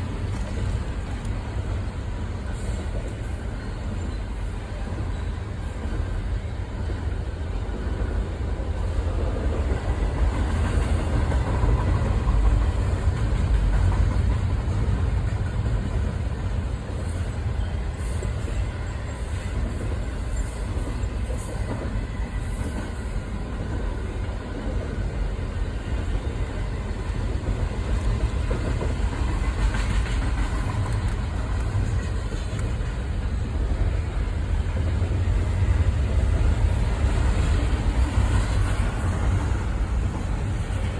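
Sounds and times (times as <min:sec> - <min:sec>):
train rumbling over track: 0:00.0 - 0:40.9
ringing tones from train wheels: 0:01.9 - 0:07.3, 0:14.1 - 0:24.3.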